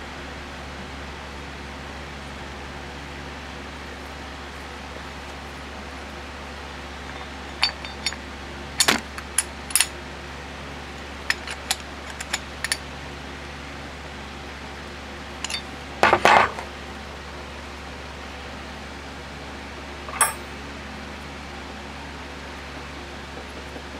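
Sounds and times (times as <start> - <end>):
metal parts clinking on work surface: 7.0 - 8.2, 8.8 - 9.9, 11.3 - 12.8, 15.4 - 16.6, 20.1 - 20.5
metal tools clattering: 7.0 - 8.2, 8.8 - 9.9, 11.3 - 12.8, 15.4 - 16.6, 20.1 - 20.5.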